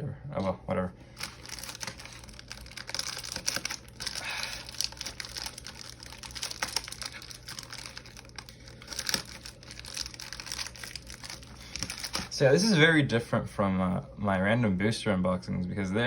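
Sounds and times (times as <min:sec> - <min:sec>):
plastic packaging crinkling: 0:01.1 - 0:12.4.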